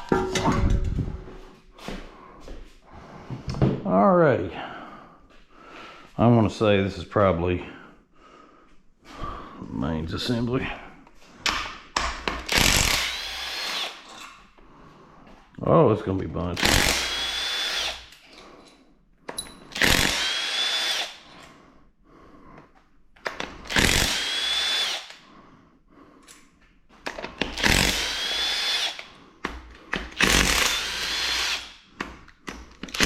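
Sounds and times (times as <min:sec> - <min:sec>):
power tool whining: 0:12.5 - 0:14.2, 0:16.6 - 0:18.4, 0:19.8 - 0:21.4, 0:23.7 - 0:25.2, 0:27.4 - 0:29.2, 0:30.0 - 0:31.8.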